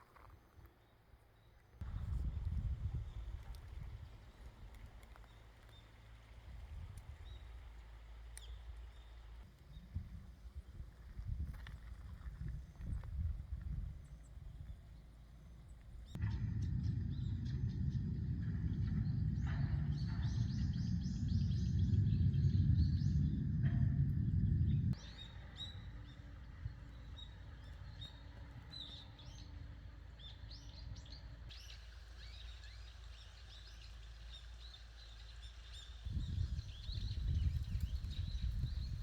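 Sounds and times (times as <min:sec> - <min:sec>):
small birds chirping: 0:12.2 - 0:39.0
loud low rumble: 0:16.1 - 0:25.1.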